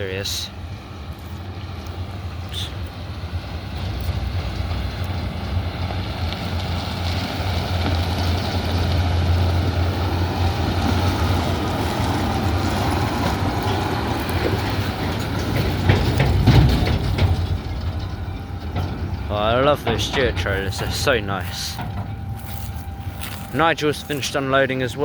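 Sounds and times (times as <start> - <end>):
tractor engine running: 0.0 - 25.0
knocks and rattles: 10.5 - 24.3.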